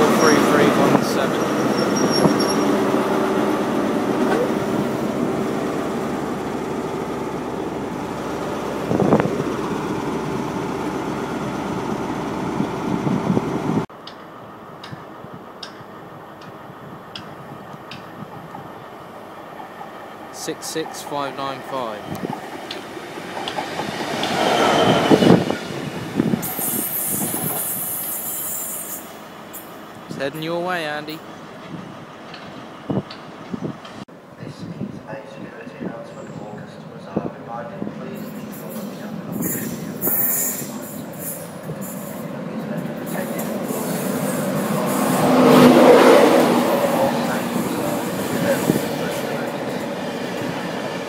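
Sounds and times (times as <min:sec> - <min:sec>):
train rumbling: 0:00.0 - 0:51.0
wheel squeal: 0:01.3 - 0:02.8, 0:24.3 - 0:25.6, 0:26.4 - 0:29.7, 0:39.0 - 0:42.2.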